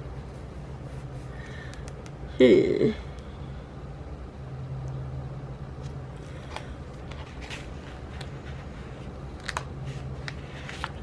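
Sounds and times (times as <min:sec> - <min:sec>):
steady low hum: 0:00.0 - 0:11.0
paper and stickers rustling: 0:06.2 - 0:11.0.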